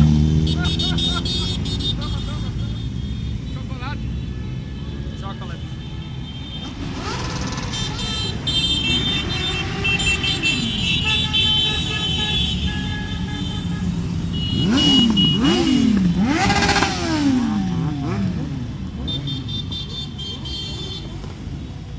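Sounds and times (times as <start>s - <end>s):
motorcycles running past: 0.0s - 3.5s, 6.6s - 11.5s, 13.6s - 19.6s
horns honking: 0.0s - 21.9s
motorcycle engines revving: 0.0s - 21.9s.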